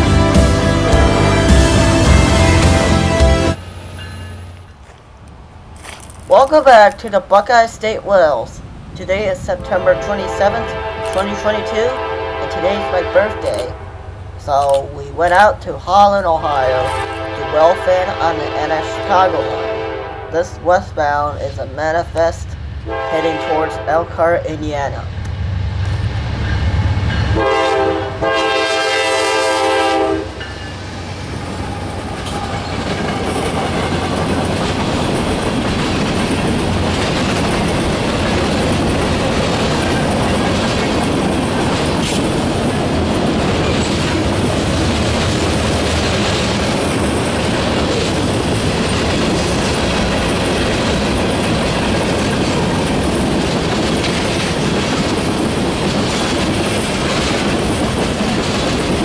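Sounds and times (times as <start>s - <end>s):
train horn blast: 0.0s - 3.6s, 9.7s - 14.2s, 16.8s - 20.4s, 22.8s - 24.0s, 27.3s - 30.5s
diesel locomotives rumbling: 0.0s - 59.0s
freight wheels clattering on rails: 32.2s - 59.0s.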